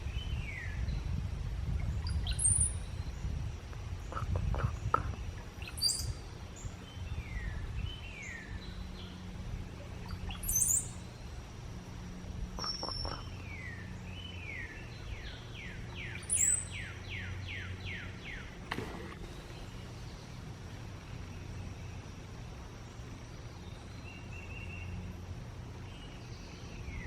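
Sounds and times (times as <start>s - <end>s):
bird singing whistled notes: 0.0s - 1.0s, 1.8s - 3.3s, 5.6s - 11.2s, 12.6s - 18.5s
low hum: 0.0s - 27.0s.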